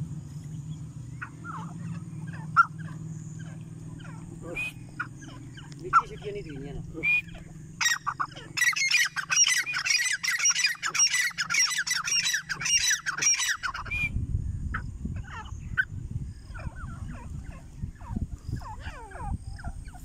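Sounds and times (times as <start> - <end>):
low rumbling noise: 0.0 - 9.9, 13.5 - 20.0
bird giving harsh squawking calls: 1.1 - 14.2.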